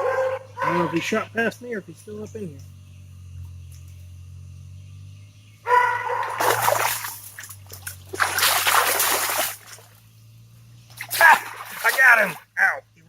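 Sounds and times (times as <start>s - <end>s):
heavy splashing in creek water: 6.0s - 10.1s, 10.9s - 12.6s.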